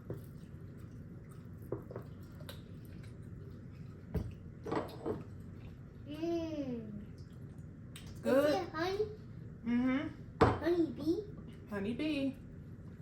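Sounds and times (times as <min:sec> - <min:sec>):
wet chewing and mouth smacks: 0:00.0 - 0:04.5.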